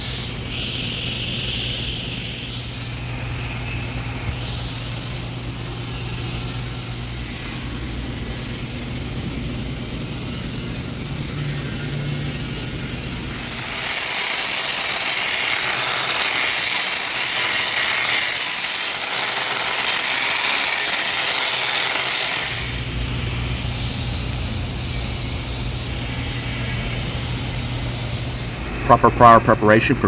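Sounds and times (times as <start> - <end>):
steady low hum: 0.0 - 14.0, 22.7 - 30.0
welding arc crackling and hissing: 0.0 - 30.0.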